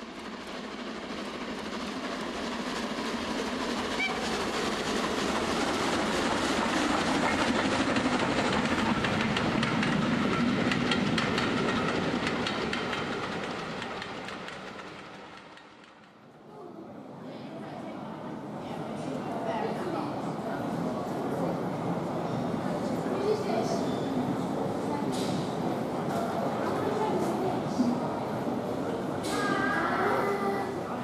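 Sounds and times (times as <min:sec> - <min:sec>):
passing train rumble: 0:00.0 - 0:31.0
wheels clicking over rail joints: 0:04.2 - 0:16.1.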